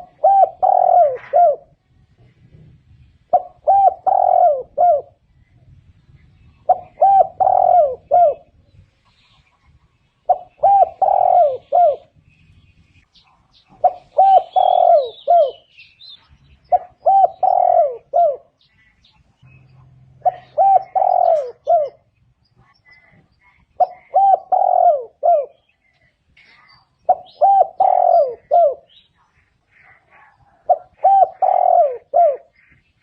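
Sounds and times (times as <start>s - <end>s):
dove cooing: 0.0s - 1.8s, 3.3s - 5.2s, 6.4s - 8.6s, 10.2s - 12.2s, 13.6s - 15.8s, 16.6s - 18.7s, 20.0s - 23.1s, 23.8s - 25.7s, 27.0s - 29.1s, 29.7s - 32.8s.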